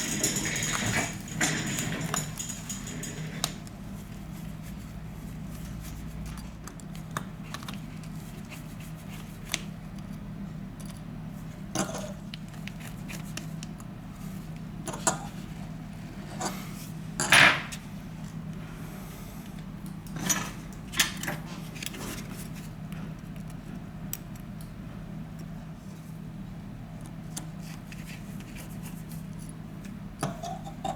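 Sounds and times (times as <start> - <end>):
metal tools clicking and scraping: 0.0 - 3.7.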